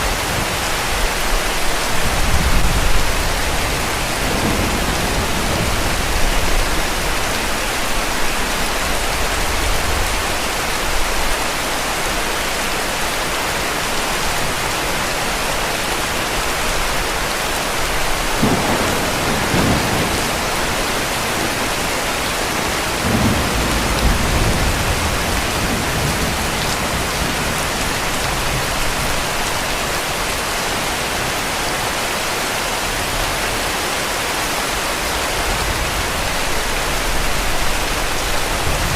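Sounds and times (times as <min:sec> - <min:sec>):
heavy rain falling: 0:00.0 - 0:38.9
distant thunder rumbling: 0:02.1 - 0:07.3, 0:18.3 - 0:29.0.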